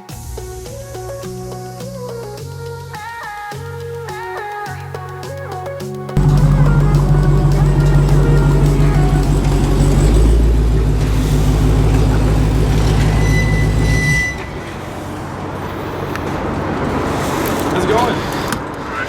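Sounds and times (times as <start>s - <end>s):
background noise: 0.0s - 19.0s
vehicle engine running: 6.2s - 18.1s.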